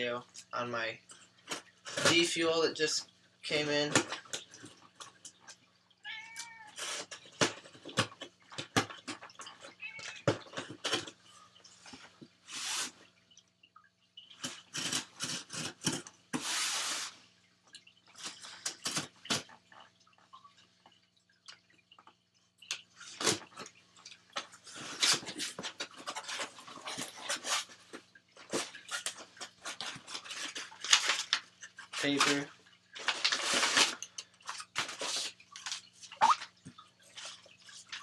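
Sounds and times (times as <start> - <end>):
packaging rustling and tearing: 33.0 - 34.0.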